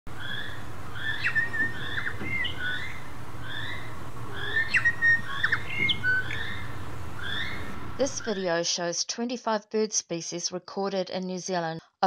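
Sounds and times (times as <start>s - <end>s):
bird calling one repeated note: 0.2s - 8.4s
bird whistles and pips: 1.0s - 3.0s, 4.4s - 7.7s.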